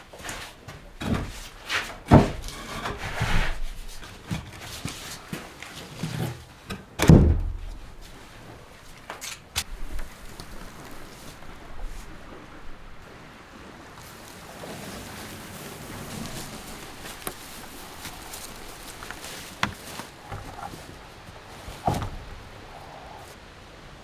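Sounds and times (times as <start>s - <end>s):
wooden boards knocking and scraping: 0.2s - 8.1s, 15.8s - 23.1s
wooden thumps: 0.7s - 5.0s, 6.0s - 8.1s, 16.3s - 23.1s.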